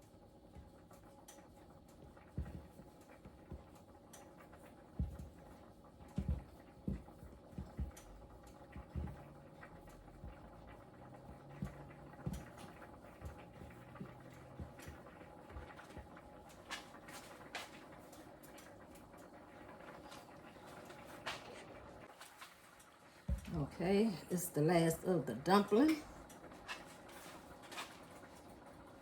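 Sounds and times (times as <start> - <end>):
steady low hum: 4.4 - 17.3.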